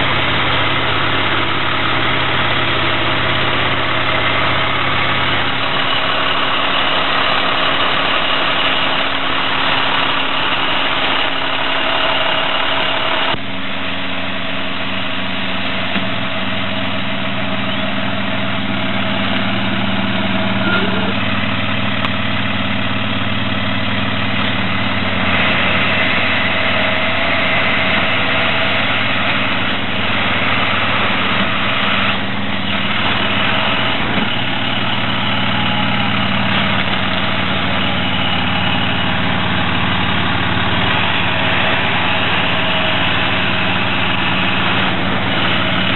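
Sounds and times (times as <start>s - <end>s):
truck diesel engine idling: 0.0s - 45.9s.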